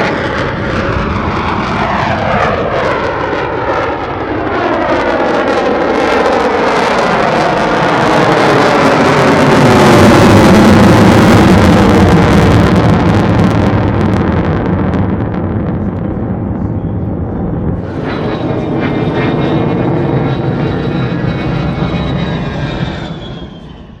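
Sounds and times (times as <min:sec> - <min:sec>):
high jet whine: 0:00.0 - 0:24.0
jet engine rumble: 0:00.0 - 0:24.0.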